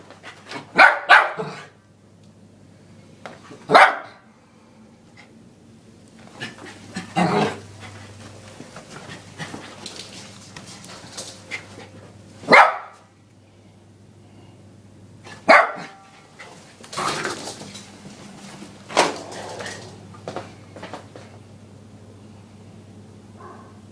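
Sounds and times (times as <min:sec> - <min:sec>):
puppy barking: 0:00.7 - 0:01.8, 0:03.7 - 0:04.2, 0:12.5 - 0:13.1, 0:15.3 - 0:16.1, 0:23.4 - 0:23.8.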